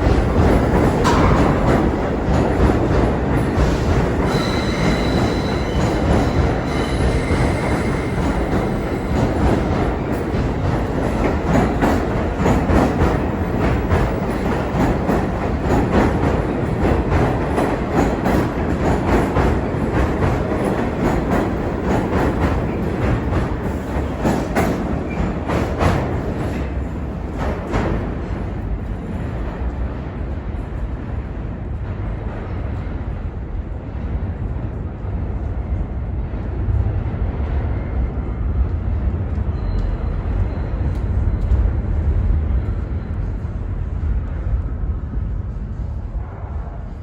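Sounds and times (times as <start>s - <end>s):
subway train wheels clattering: 0.0s - 47.0s
faint high wheel squeal: 4.3s - 9.4s, 39.5s - 41.5s.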